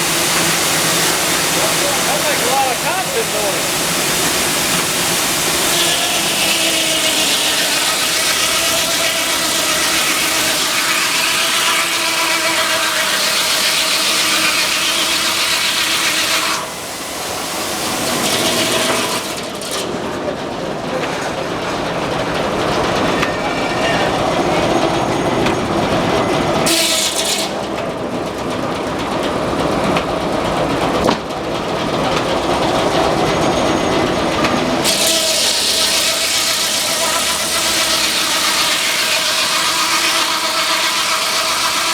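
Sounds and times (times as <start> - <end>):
circular saw cutting log: 0.0 - 20.0, 26.6 - 27.8, 34.0 - 41.9
mill machinery running: 0.0 - 41.9.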